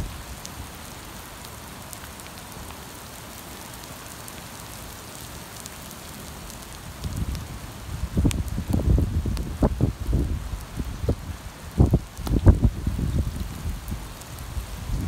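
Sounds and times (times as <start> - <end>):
rain on a wet street: 0.0 - 15.0
wind buffeting microphone: 6.9 - 15.0.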